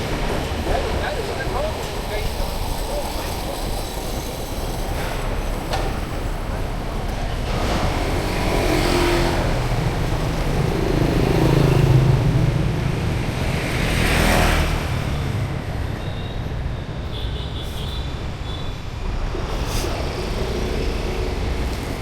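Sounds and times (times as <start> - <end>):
vehicle passing by: 7.4 - 15.1.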